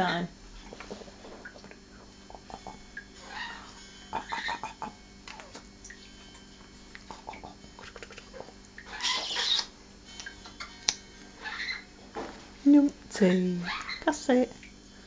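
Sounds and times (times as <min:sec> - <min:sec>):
parrot clicking and chattering: 0:02.3 - 0:05.7, 0:07.0 - 0:11.8
parrot rough call: 0:02.4 - 0:05.6, 0:07.3 - 0:09.7.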